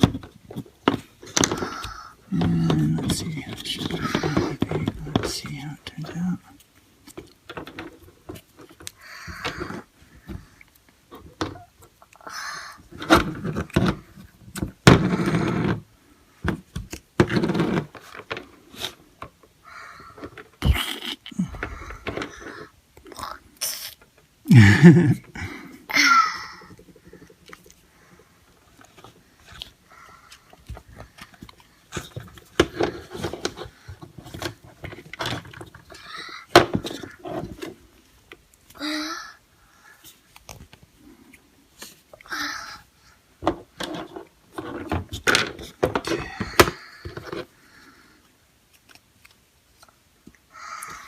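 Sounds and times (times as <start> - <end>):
plastic tools clicking and knocking: 0.0 - 12.2, 12.9 - 18.6, 28.6 - 38.4, 43.4 - 47.5
plastic tools knocking and clicking: 43.4 - 47.5.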